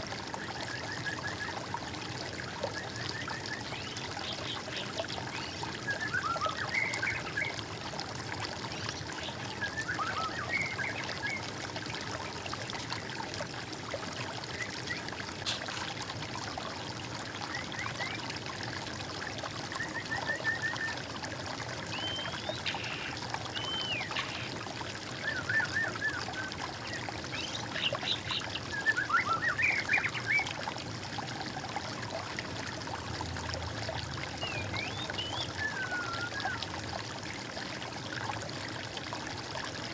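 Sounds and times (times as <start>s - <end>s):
water trickling: 0.0s - 39.9s
birds singing: 21.8s - 24.6s, 25.2s - 30.4s, 34.4s - 36.6s.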